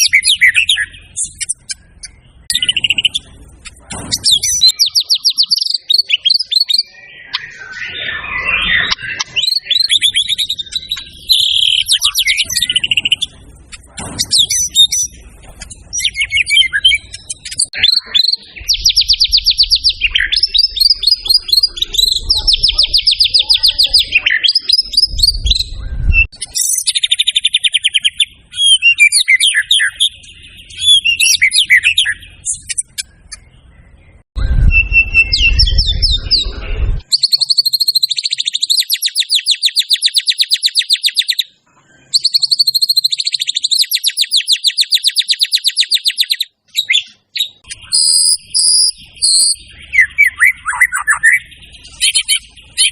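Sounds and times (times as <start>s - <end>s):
songbird trilling and whistling: 0.0s - 52.9s
low rumble: 33.2s - 37.0s.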